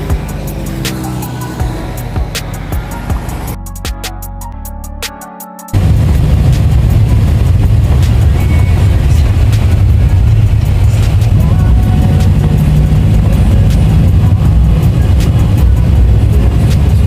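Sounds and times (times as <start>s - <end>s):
vehicle engine and road rumble: 0.0s - 3.6s, 5.8s - 17.0s
faint engine hum: 5.8s - 17.0s.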